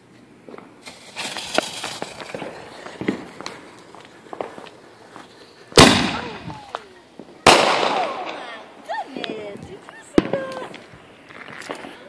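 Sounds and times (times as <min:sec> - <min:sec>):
footsteps: 0:00.5 - 0:07.4, 0:09.2 - 0:12.0
fuse hissing and crackling: 0:00.5 - 0:12.0
firework mortar bang: 0:00.8 - 0:03.6, 0:05.8 - 0:08.5.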